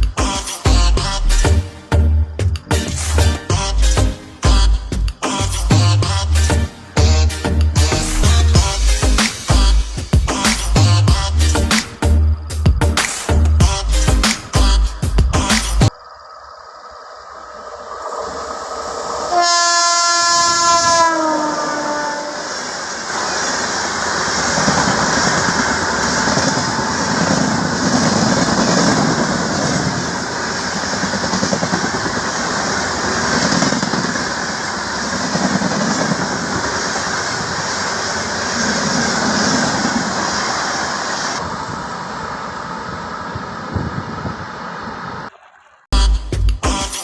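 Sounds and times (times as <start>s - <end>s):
music: 0.0s - 15.9s, 46.0s - 47.0s
train rumbling on rails: 0.0s - 45.9s.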